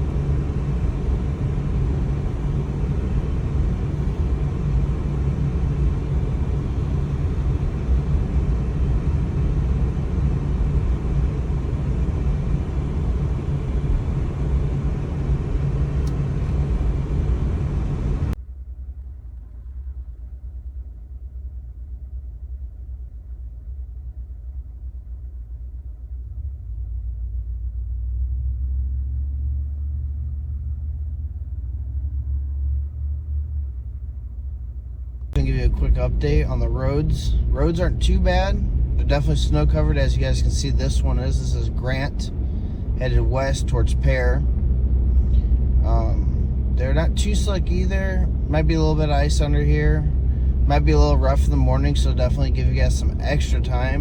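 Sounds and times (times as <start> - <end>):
car road noise rumble: 0.0 - 54.0.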